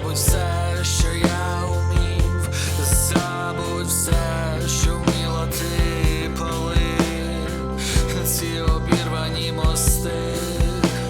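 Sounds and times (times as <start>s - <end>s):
guitar and bass tones: 0.0s - 11.0s.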